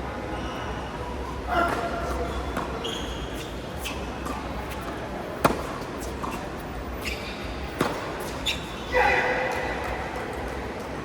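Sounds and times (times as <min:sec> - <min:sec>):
tennis ball knocking: 0:05.4 - 0:06.4.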